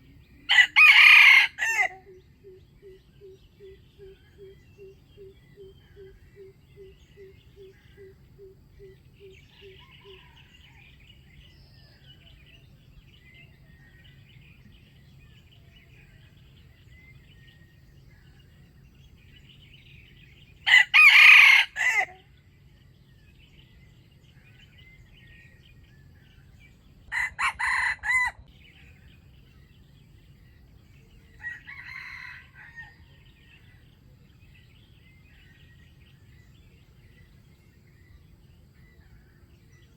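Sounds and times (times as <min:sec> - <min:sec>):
small birds chirping: 0:00.0 - 0:39.9
rooster crowing: 0:00.5 - 0:02.1, 0:09.4 - 0:11.0, 0:20.6 - 0:22.2, 0:27.1 - 0:28.5, 0:31.3 - 0:33.4.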